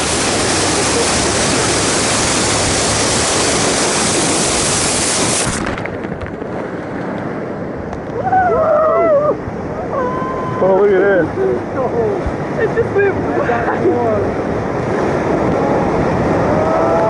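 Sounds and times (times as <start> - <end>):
river water rushing through rapids: 0.0 - 8.3.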